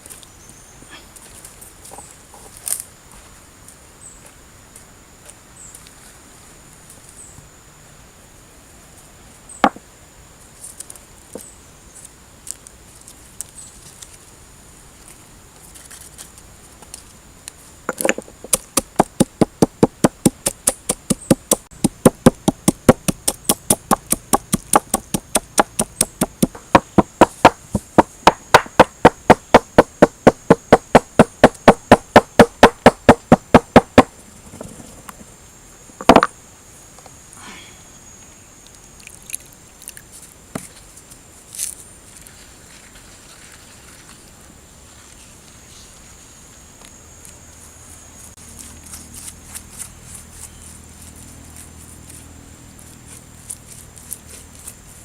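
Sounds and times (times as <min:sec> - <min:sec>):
knife chopping on a board: 0:17.9 - 0:34.1
knocks: 0:17.9 - 0:34.1, 0:36.0 - 0:36.3.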